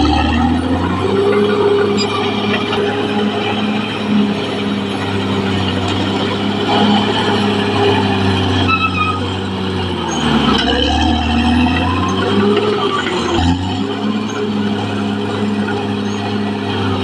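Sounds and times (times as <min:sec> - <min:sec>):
bulldozer diesel engine running: 0:00.0 - 0:17.0
short high squeal: 0:08.4 - 0:09.4.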